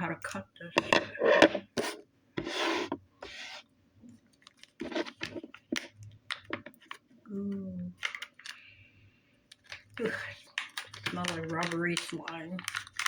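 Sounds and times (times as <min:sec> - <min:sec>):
rasping rubs on plastic: 0:01.2 - 0:03.6
plastic packaging clicks and crinkles: 0:04.2 - 0:07.2, 0:07.9 - 0:08.7, 0:09.5 - 0:13.0.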